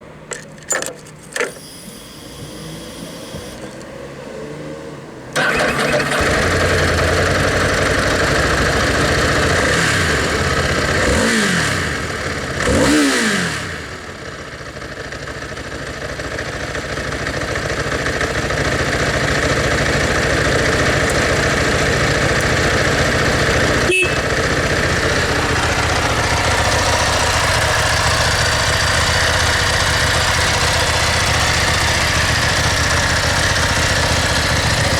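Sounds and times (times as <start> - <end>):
motorcycle engine idling: 0.2 - 3.8, 5.4 - 11.3, 14.0 - 34.9
clicks: 0.2 - 3.9
throttle blips: 1.4 - 3.7.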